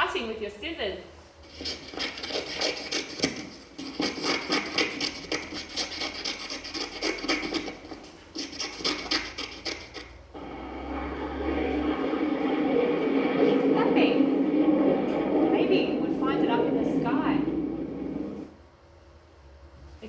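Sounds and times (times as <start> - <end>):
jet plane rumble: 10.4 - 18.5.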